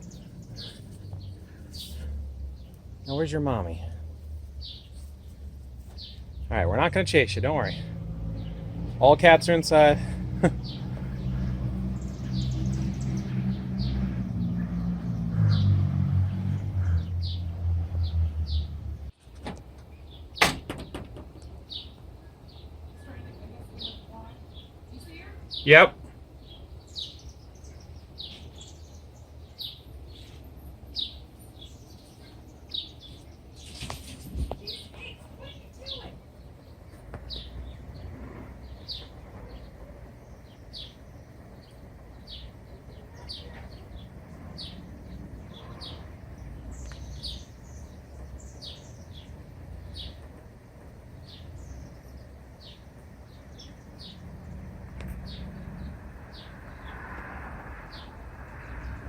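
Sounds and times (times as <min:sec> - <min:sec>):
robin chirping: 0:00.0 - 0:08.7, 0:21.6 - 0:33.9, 0:34.6 - 0:50.4, 0:51.1 - 0:56.9.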